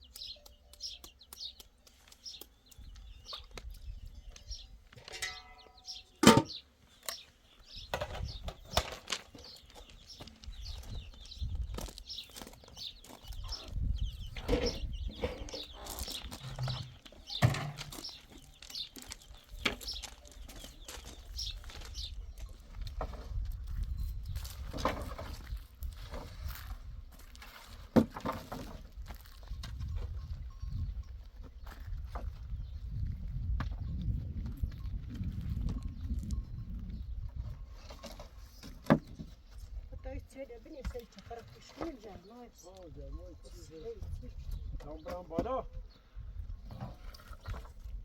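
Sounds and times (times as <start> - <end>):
bird chirps: 0.0 - 22.6.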